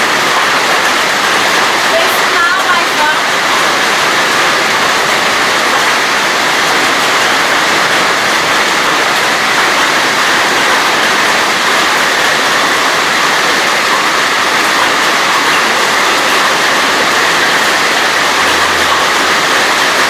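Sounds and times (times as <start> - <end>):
hail and heavy rain pelting: 0.0 - 20.0.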